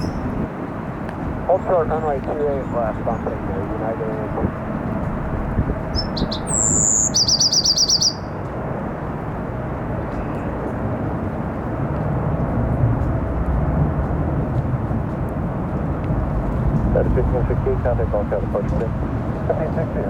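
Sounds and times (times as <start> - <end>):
songbird singing: 0.0 - 0.5, 1.5 - 8.4
wind and rain hiss: 0.0 - 20.0
low rumble: 8.5 - 20.0.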